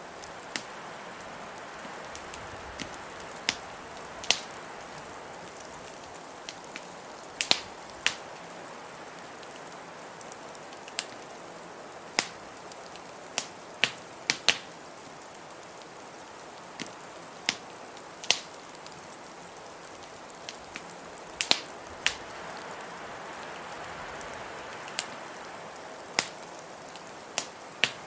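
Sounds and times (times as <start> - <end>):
blizzard wind hissing: 0.0 - 10.7, 19.3 - 28.0
wood fire crackling: 0.0 - 28.0.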